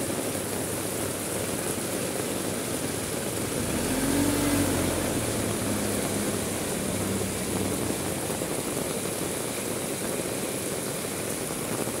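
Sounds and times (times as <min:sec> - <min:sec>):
heavy rain falling: 0:00.0 - 0:12.0
vehicle engine hum: 0:02.6 - 0:09.5.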